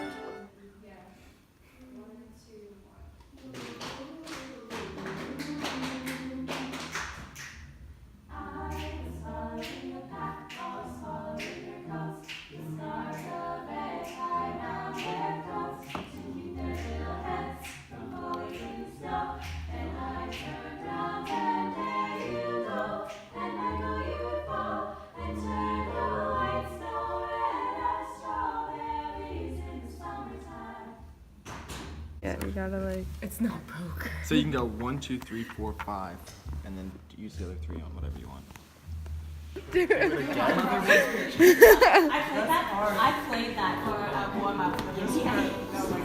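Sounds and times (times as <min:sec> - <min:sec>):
choir singing in harmony: 0:00.0 - 0:00.6, 0:04.7 - 0:07.2, 0:08.2 - 0:31.9, 0:39.7 - 0:46.0
low bass line: 0:33.8 - 0:41.8.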